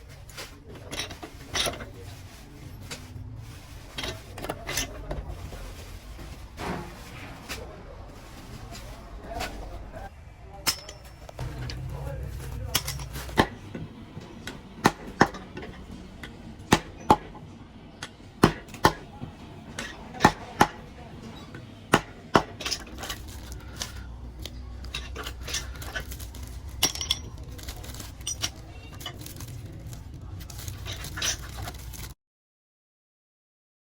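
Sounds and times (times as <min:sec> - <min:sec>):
low steady hum: 0:00.0 - 0:18.1
metal pieces clinking: 0:22.6 - 0:32.2.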